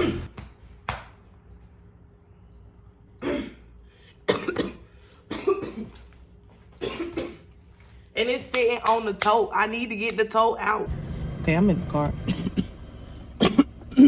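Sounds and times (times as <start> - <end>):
woman coughing: 3.2 - 3.6, 4.3 - 6.0, 6.8 - 7.5, 12.2 - 12.8, 13.4 - 14.0.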